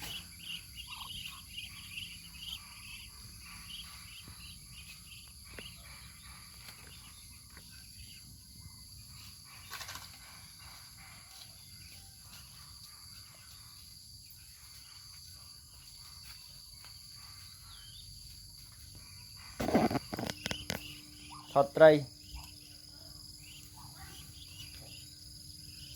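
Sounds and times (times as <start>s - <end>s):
insect chorus: 0.0s - 25.9s
brief rustle: 19.6s - 20.9s.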